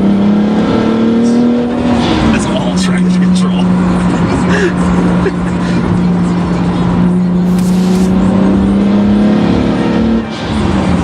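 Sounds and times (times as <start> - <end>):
car engine accelerating: 0.0 - 11.0
brief hiss: 7.4 - 8.2.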